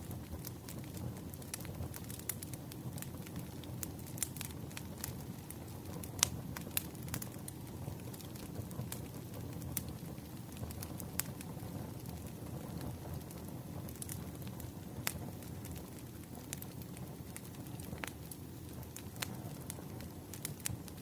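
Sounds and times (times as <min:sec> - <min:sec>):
wood fire crackling: 0:00.0 - 0:21.0.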